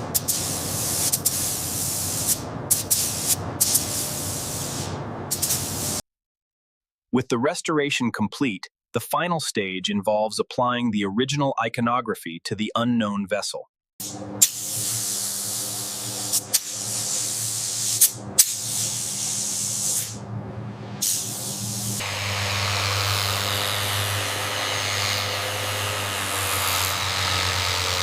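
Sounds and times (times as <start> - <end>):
paint spray gun hissing: 0.0 - 6.0, 14.0 - 20.2, 21.0 - 28.0
steady low hum: 14.0 - 28.0
spray gun clicks: 14.4 - 17.0.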